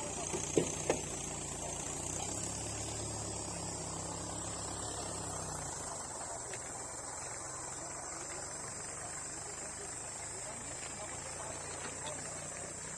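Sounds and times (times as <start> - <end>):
engine idling: 0.0 - 12.9
insects chirring: 0.0 - 12.9.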